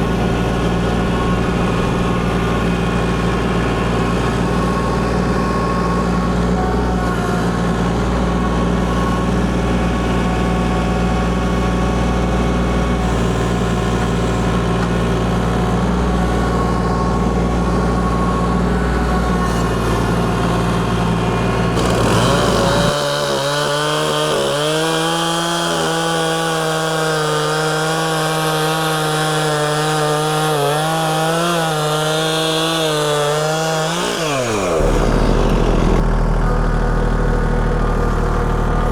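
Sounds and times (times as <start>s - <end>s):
chainsaw cutting: 0.0s - 16.4s, 19.0s - 38.9s
heavy engine idling: 0.0s - 23.8s, 34.3s - 38.9s.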